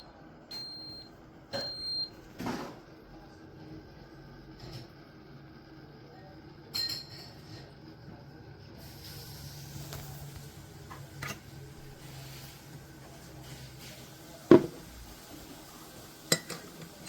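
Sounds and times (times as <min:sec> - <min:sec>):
faint knocks: 0:14.5 - 0:14.8.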